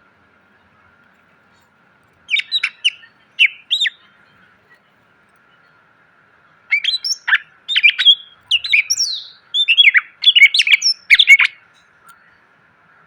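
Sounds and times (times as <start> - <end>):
bird singing whistles and chirps: 2.3 - 4.1, 6.7 - 12.2.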